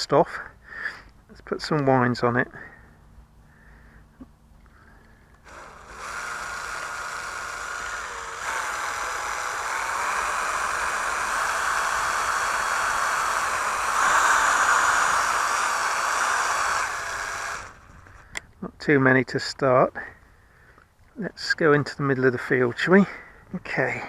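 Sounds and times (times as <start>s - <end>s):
winder whirring: 5.4s - 18.4s.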